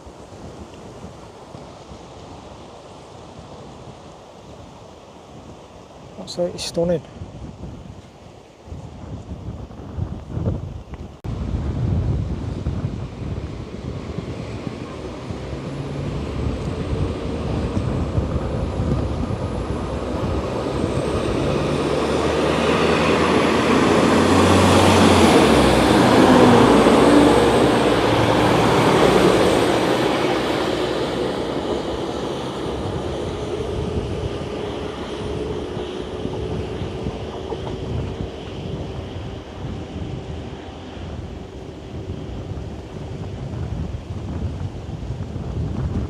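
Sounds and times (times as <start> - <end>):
wind buffeting microphone: 0.0 - 46.0
diesel train passing: 11.3 - 45.8.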